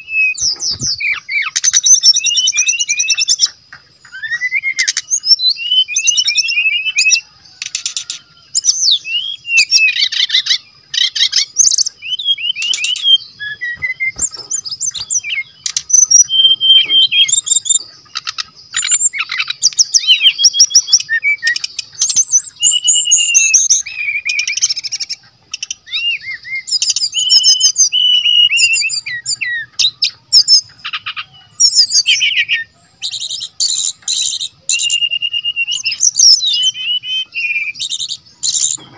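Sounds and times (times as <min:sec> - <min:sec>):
bird singing chirps and trills: 0:00.0 - 0:38.9.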